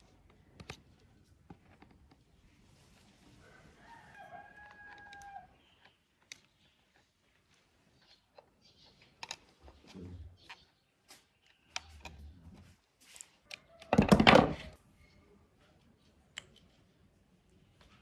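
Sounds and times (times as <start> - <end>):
clicks and knocks: 13.8 - 14.8.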